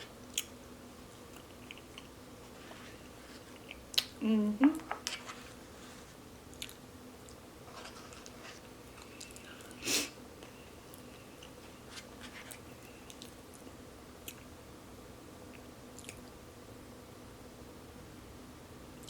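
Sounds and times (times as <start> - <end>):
person chewing: 1.2 - 2.2, 6.5 - 7.4
small wet mouth clicks: 16.0 - 16.3.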